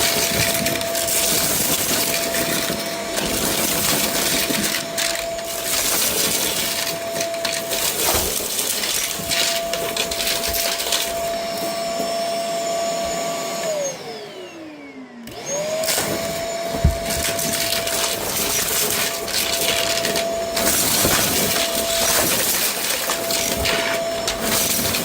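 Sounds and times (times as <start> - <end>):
vacuum cleaner motor whine: 0.0 - 25.0.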